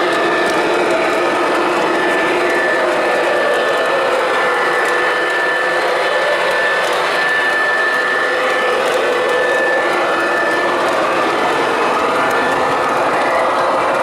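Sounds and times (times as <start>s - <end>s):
model train whirring: 0.0s - 14.0s
faint steady tones: 9.7s - 14.0s.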